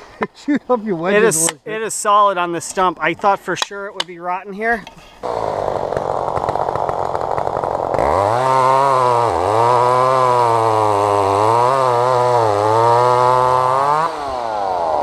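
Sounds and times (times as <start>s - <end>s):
chainsaw engine revving: 5.2s - 15.0s.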